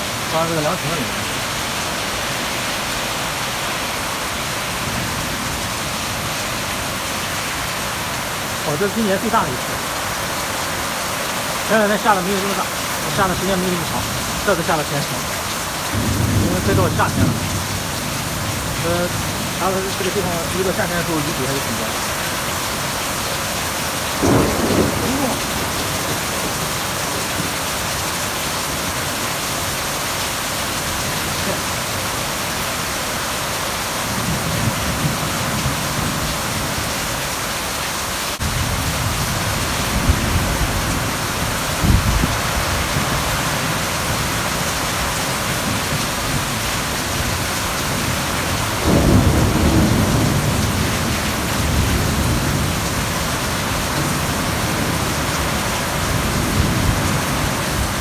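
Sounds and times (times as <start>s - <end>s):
rain pouring down: 0.0s - 58.0s
thunder rumbling: 15.9s - 21.7s, 24.1s - 28.3s, 45.5s - 58.0s.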